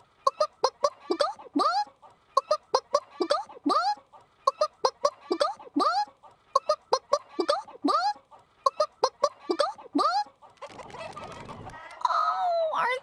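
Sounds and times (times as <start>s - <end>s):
person imitating chicken clucking: 0.2s - 10.5s.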